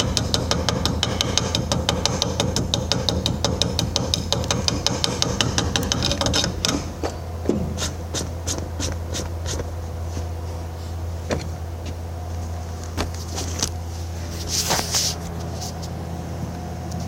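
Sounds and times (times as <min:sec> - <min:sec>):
sharp metal taps: 0:00.0 - 0:07.9
low machine hum: 0:00.0 - 0:17.0.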